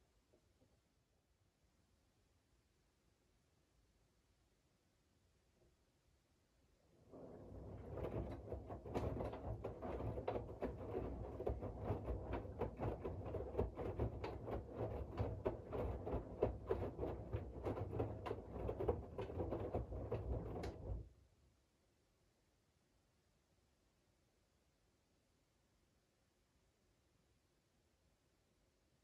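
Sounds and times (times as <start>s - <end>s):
laundry tumbling with knocks: 7.0s - 21.1s
washing machine drum rumbling: 7.1s - 21.1s.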